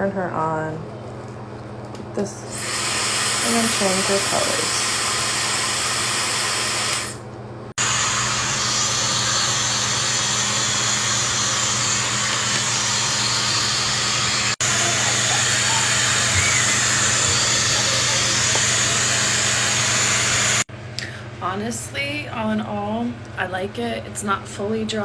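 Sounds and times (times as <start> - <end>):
hair dryer blowing: 2.5 - 7.2, 7.8 - 20.7.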